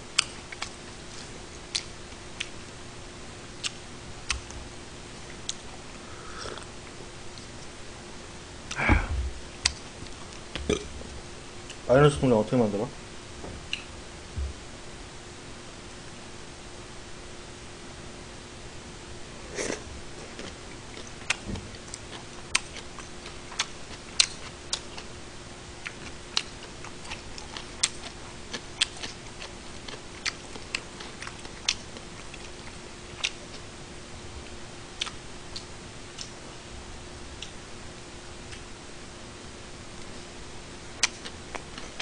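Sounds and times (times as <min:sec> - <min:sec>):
faint steady hum: 0:00.0 - 0:42.0
close chewing with wet mouth clicks: 0:00.2 - 0:00.8, 0:20.4 - 0:25.1, 0:25.8 - 0:33.6, 0:35.0 - 0:36.4, 0:40.9 - 0:42.0.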